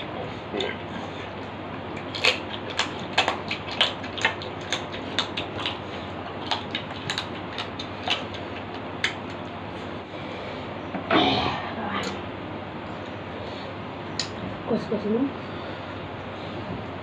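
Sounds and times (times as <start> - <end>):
people chewing with lip smacks: 0.0 - 10.0.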